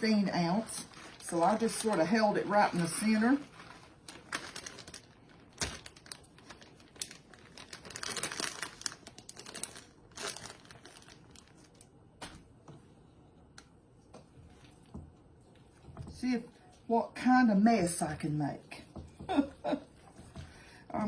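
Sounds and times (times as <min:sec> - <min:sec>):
plastic bag crinkling: 0:00.1 - 0:12.0.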